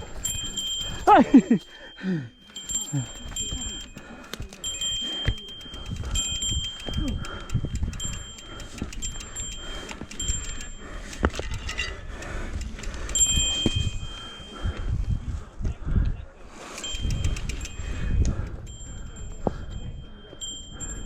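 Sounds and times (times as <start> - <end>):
metallic ringing tones: 0.0 - 14.8, 16.8 - 21.0
footsteps on trail: 0.0 - 15.8
bike freewheel clicking: 2.9 - 14.3, 16.8 - 18.1.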